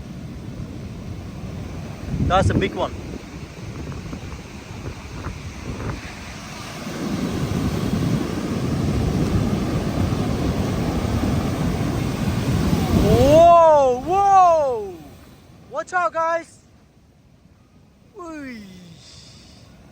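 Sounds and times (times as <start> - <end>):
wind noise on microphone: 0.0 - 15.4
ocean wave breaking: 0.0 - 19.9
surf rushing up beach: 0.0 - 19.9.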